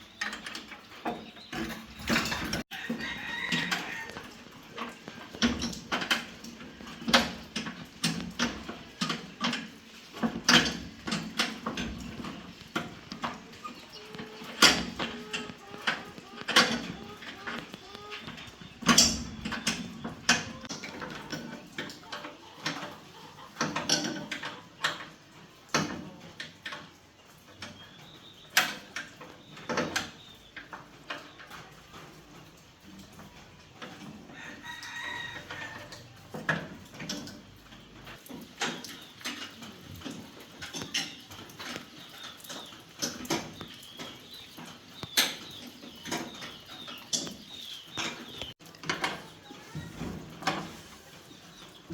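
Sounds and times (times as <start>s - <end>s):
chickens clucking: 0.0s - 51.9s
sharp knocks and clatter: 0.2s - 23.0s
rooster crowing: 2.7s - 4.2s.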